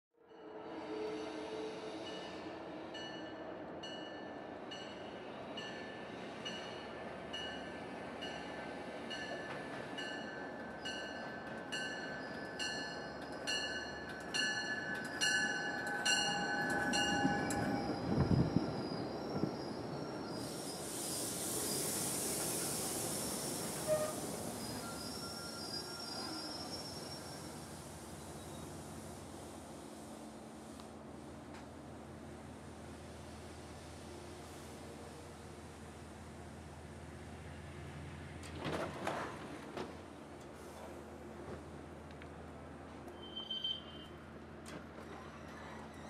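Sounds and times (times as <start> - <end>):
locomotive bell ringing: 10.0 - 18.1
squeal of wheels or brakes: 11.9 - 13.4, 17.1 - 28.7, 43.1 - 44.2, 45.0 - 46.0
coaches rolling hiss: 20.3 - 25.8.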